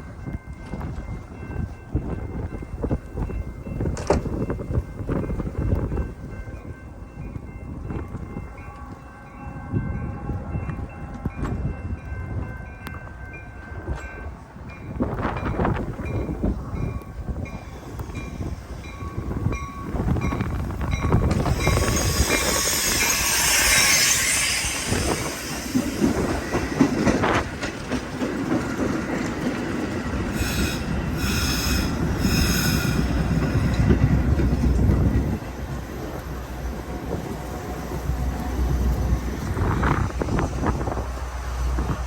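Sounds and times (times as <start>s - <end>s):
train rumbling into station: 0.0s - 42.0s
wheel and brake squeal: 21.4s - 25.3s.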